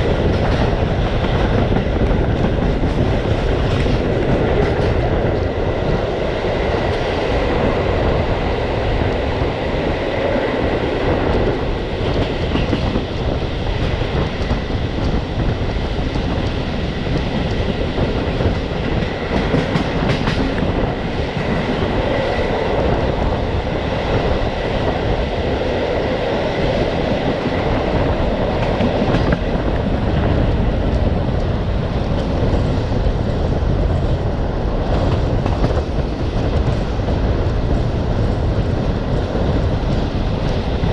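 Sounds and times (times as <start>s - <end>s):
train wheels rumbling on rails: 0.0s - 40.9s
clicks at rail joints: 18.2s - 20.7s.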